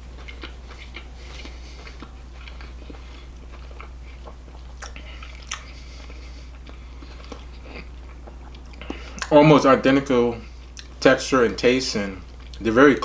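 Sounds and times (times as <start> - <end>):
person chewing crunchy food: 0.0 - 9.5, 10.4 - 11.6, 12.2 - 13.0
wet mouth clicks: 4.8 - 5.8.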